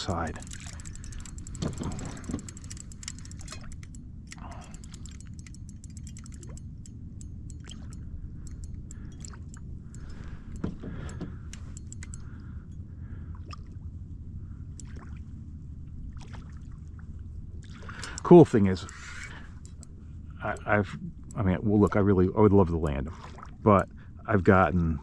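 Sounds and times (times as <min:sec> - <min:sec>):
water lapping against a hull: 0:00.0 - 0:06.6, 0:07.5 - 0:25.0
fishing reel clicking: 0:00.0 - 0:12.5, 0:17.7 - 0:22.8.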